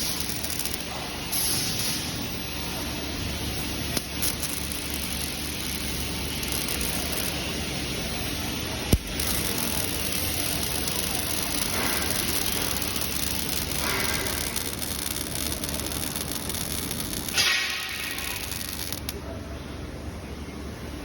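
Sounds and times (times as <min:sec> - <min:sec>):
hissing welding machine noise: 0:00.0 - 0:21.0.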